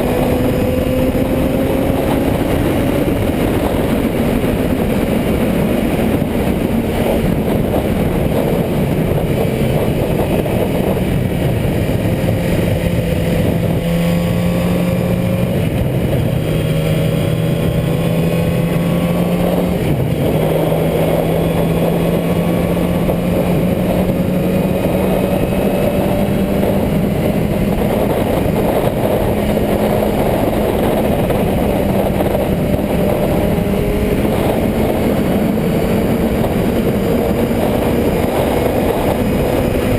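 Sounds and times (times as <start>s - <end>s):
constant rushing noise: 0.0s - 39.9s
motorcycle engine running: 0.0s - 39.9s.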